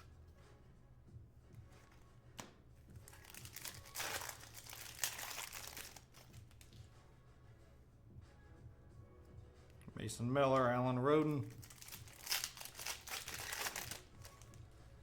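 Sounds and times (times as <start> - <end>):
foil wrapper tearing and crinkling: 3.1 - 6.4, 11.5 - 14.6.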